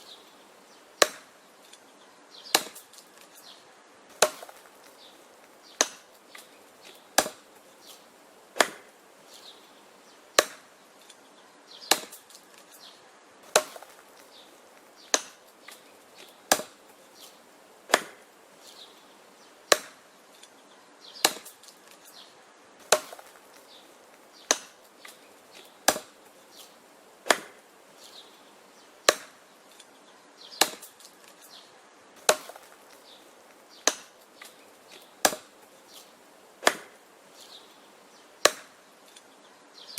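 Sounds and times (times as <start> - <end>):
axe chopping wood: 1.0 - 1.4, 2.5 - 3.3, 4.1 - 5.1, 5.7 - 8.0, 8.6 - 8.9, 10.4 - 10.8, 11.8 - 12.8, 13.4 - 18.3, 19.7 - 20.1, 21.2 - 22.1, 22.8 - 27.6, 29.0 - 29.5, 30.6 - 31.5, 32.2 - 33.2, 33.8 - 37.0, 38.4 - 39.2.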